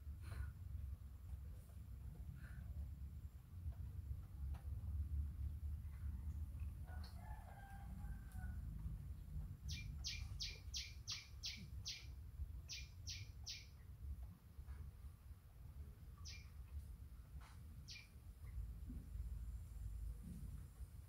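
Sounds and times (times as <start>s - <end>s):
low steady rumble: 0.0s - 21.0s
distant rooster crowing: 6.8s - 9.0s
bird chirping: 9.6s - 13.8s, 16.2s - 16.7s, 17.8s - 18.2s.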